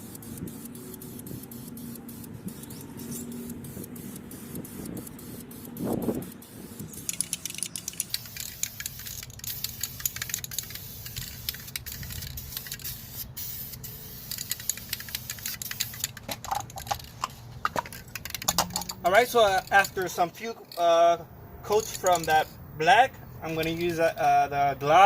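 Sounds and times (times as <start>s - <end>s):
spray hiss: 0.0s - 16.1s
spray can rattling clicks: 0.1s - 20.9s, 21.7s - 22.5s.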